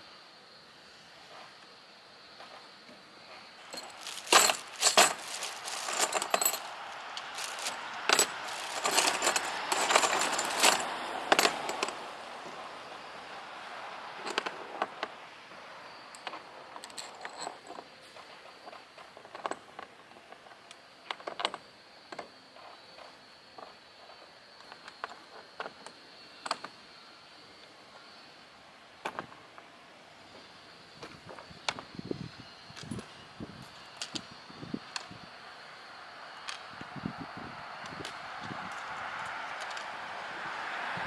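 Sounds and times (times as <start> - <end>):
metal tools clinking and rattling: 3.6 - 12.0, 16.2 - 17.8.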